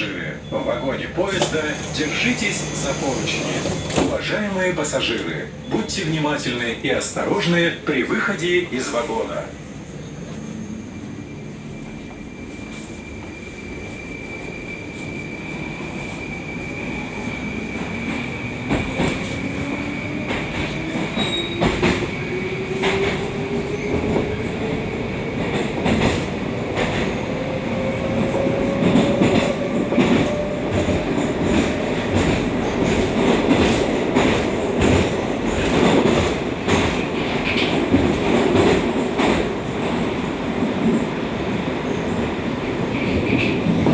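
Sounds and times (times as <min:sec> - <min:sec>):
train rumble in tunnel: 0:00.0 - 0:43.9
train motor whine: 0:01.4 - 0:04.1.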